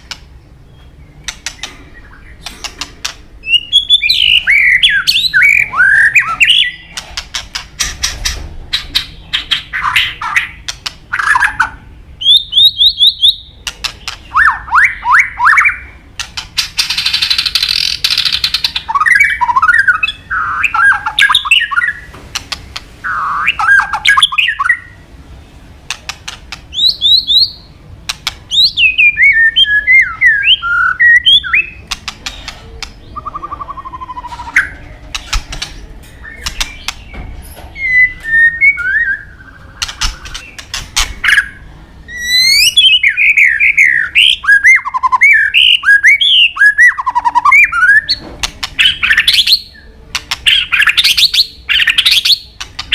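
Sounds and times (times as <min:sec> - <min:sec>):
sharp bird clicks: 0:00.0 - 0:24.8, 0:25.9 - 0:37.3, 0:38.1 - 0:41.6, 0:46.8 - 0:52.9
bird singing whistled notes: 0:03.4 - 0:06.9, 0:26.7 - 0:27.7, 0:28.5 - 0:31.8, 0:36.1 - 0:48.2.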